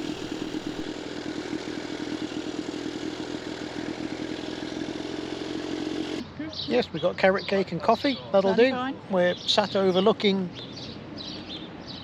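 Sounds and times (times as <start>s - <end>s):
two-stroke motorcycle engine running: 0.0s - 6.2s.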